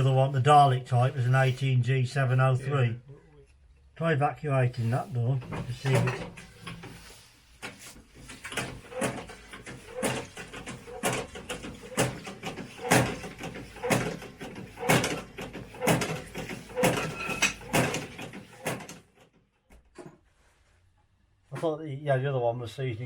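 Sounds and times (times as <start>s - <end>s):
hand pump strokes: 4.8s - 19.0s.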